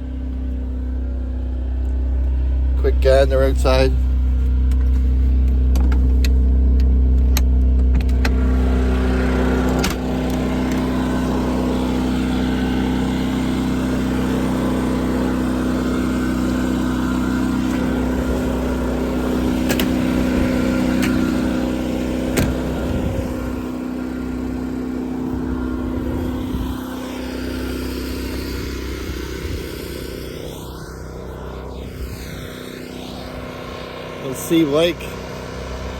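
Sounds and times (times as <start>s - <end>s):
generator engine running: 0.0s - 35.9s
sharp clicks and knocks: 4.7s - 8.4s, 19.6s - 20.0s.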